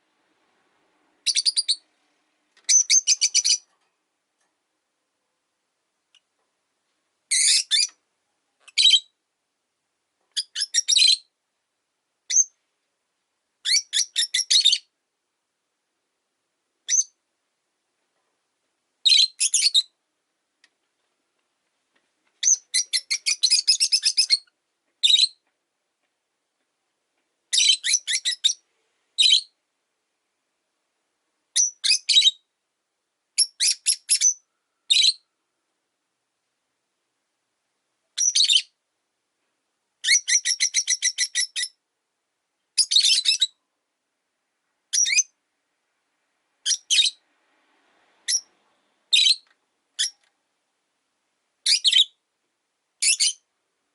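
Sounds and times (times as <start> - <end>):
lovebirds chirping: 1.2 - 2.0, 2.6 - 3.7, 7.3 - 8.0, 10.3 - 11.3, 12.3 - 12.6, 13.6 - 14.9, 16.9 - 17.2, 19.0 - 20.0, 22.4 - 25.4, 27.5 - 28.6, 29.2 - 29.6, 31.5 - 32.5, 33.4 - 35.2, 38.2 - 38.8, 40.0 - 41.8, 42.7 - 43.6, 44.9 - 45.4, 46.6 - 47.2, 48.2 - 50.3, 51.6 - 52.2, 53.0 - 53.5.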